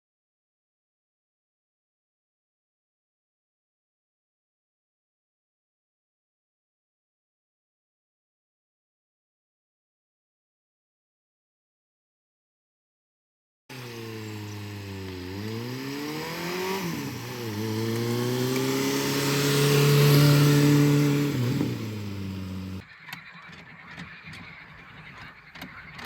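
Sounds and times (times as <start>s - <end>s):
vehicle engine accelerating: 13.7s - 22.8s.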